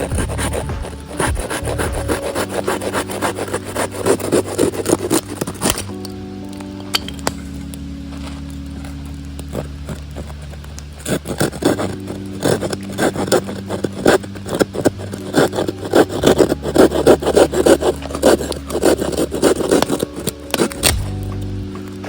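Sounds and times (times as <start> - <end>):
pull saw cutting wood: 0.0 - 5.9, 11.0 - 21.0.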